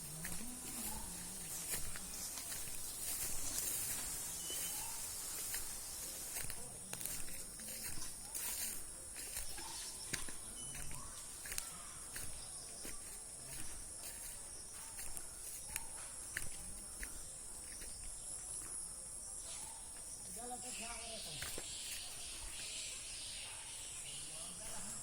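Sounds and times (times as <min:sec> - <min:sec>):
high-pitched hiss: 0:00.0 - 0:07.8, 0:20.2 - 0:25.0.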